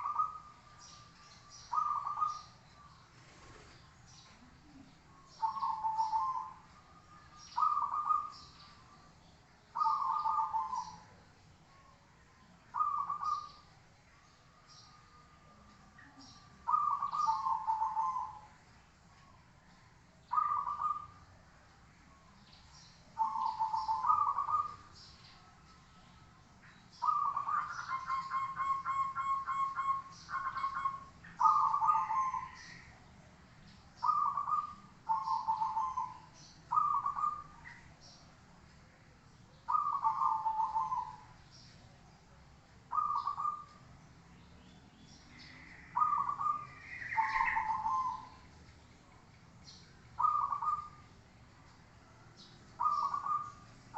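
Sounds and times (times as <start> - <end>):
dove cooing: 0.0 - 0.6, 1.7 - 2.6, 4.5 - 8.4, 9.7 - 11.2, 12.7 - 13.6, 16.2 - 18.6, 20.3 - 21.2, 23.2 - 24.9, 27.0 - 32.9, 34.0 - 37.6, 39.7 - 41.4, 42.9 - 43.8, 45.3 - 48.5, 50.2 - 51.0, 52.8 - 53.6.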